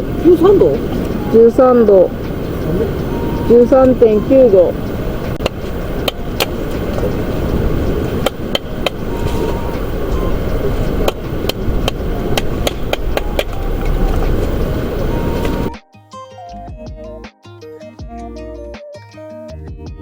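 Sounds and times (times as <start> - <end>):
wind buffeting microphone: 0.0 - 15.8.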